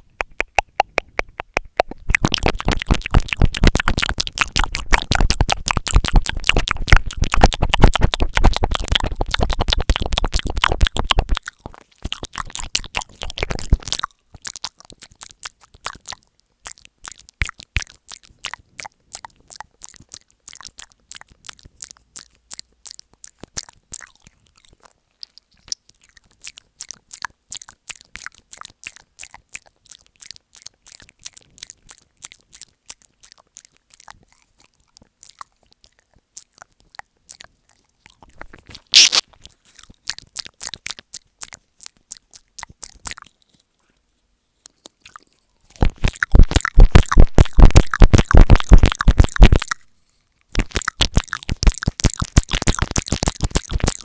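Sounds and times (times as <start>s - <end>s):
wet mouth clicks and smacks: 0.0s - 43.7s, 44.6s - 49.9s, 50.5s - 54.0s
crackling bursts on microphone: 38.4s - 39.4s, 45.8s - 49.8s, 50.6s - 54.0s.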